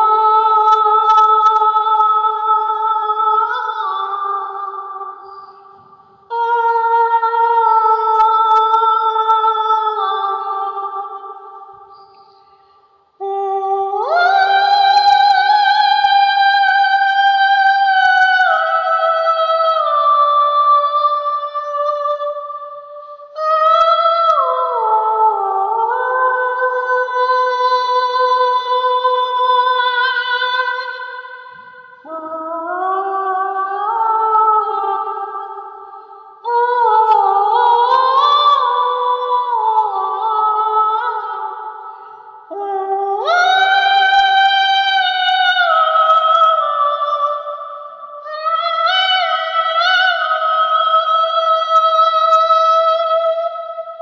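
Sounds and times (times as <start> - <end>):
wordless vocal harmony: 13.2 - 54.0.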